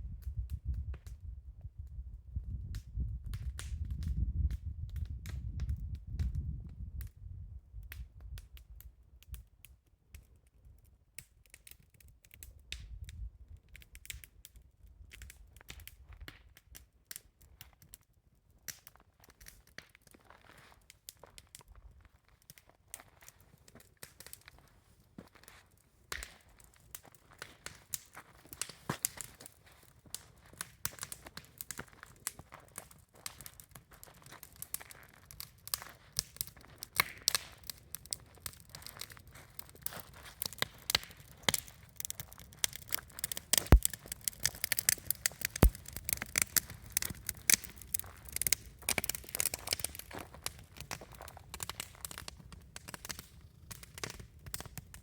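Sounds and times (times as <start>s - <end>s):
campfire crackling and popping: 0.1s - 55.0s.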